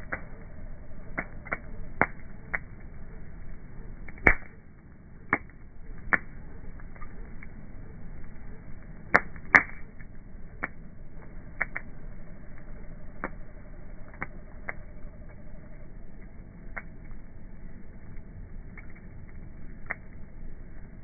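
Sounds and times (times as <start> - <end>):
bonfire crackling: 0.0 - 21.0
burning wood popping: 0.0 - 21.0.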